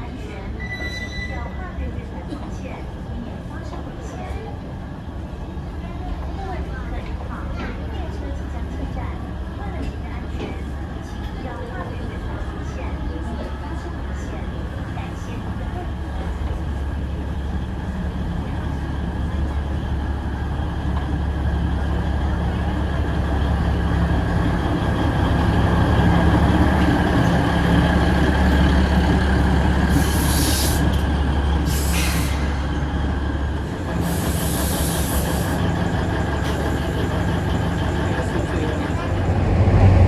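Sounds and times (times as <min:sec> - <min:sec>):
diesel locomotive engine drone: 0:00.0 - 0:40.0
short high hisses: 0:29.9 - 0:30.9.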